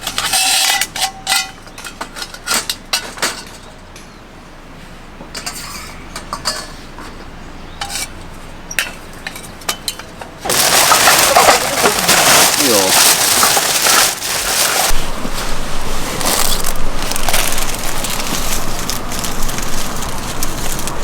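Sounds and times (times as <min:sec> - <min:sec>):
dishes and utensils clattering: 0:00.0 - 0:03.7, 0:05.3 - 0:07.2, 0:07.8 - 0:14.9.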